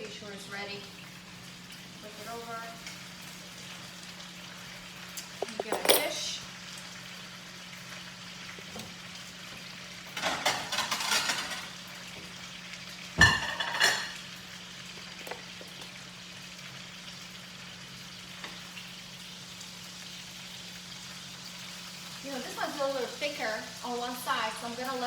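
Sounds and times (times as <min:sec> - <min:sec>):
food sizzling in oil: 0:00.0 - 0:25.0
dishes clanking: 0:05.2 - 0:06.4, 0:10.2 - 0:11.7, 0:13.2 - 0:14.2
kitchenware clattering: 0:05.2 - 0:06.4, 0:10.1 - 0:11.8, 0:13.2 - 0:14.2.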